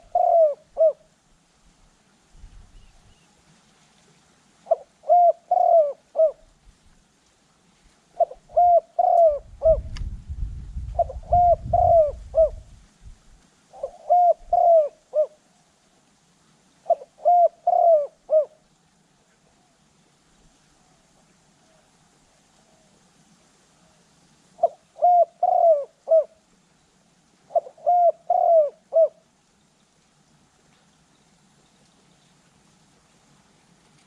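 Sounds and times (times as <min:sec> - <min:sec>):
dove cooing: 0:00.0 - 0:01.1, 0:04.6 - 0:06.6, 0:08.1 - 0:09.9, 0:10.9 - 0:12.7, 0:13.7 - 0:15.6, 0:16.8 - 0:18.7, 0:24.6 - 0:26.5, 0:27.4 - 0:29.3.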